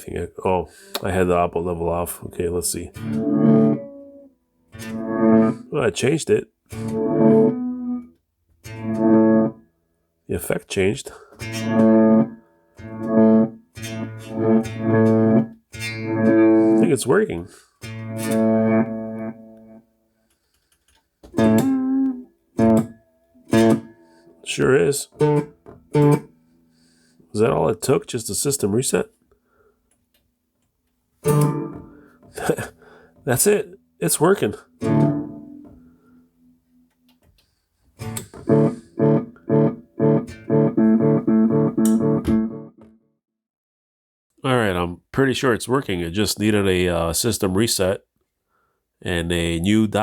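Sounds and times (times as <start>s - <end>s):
electric guitar notes with effects: 2.9s - 5.7s, 6.7s - 9.6s, 11.4s - 17.1s, 17.9s - 19.8s, 21.4s - 24.5s, 25.2s - 26.3s, 31.3s - 32.3s, 34.7s - 36.6s, 38.0s - 43.0s.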